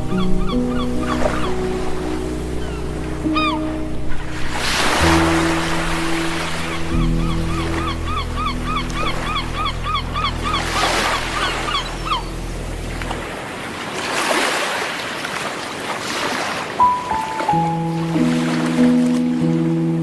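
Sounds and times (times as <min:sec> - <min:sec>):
low pad music: 0:00.0 - 0:13.6, 0:16.9 - 0:20.0
sea waves on shore: 0:00.0 - 0:20.0.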